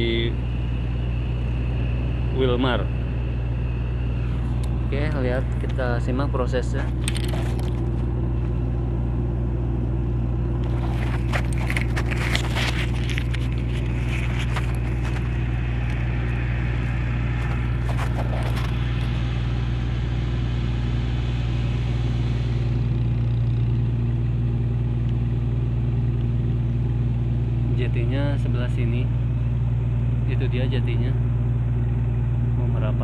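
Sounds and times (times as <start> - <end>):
ship's engine droning: 0.0 - 33.0
faint clicks and rustles: 10.6 - 19.2.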